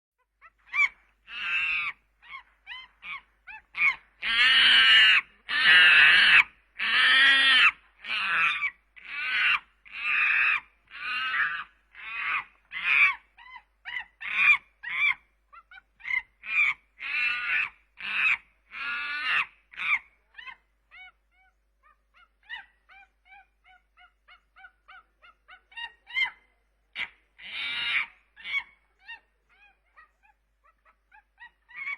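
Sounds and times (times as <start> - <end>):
harsh animal calls: 0.7 - 21.2, 27.0 - 31.9.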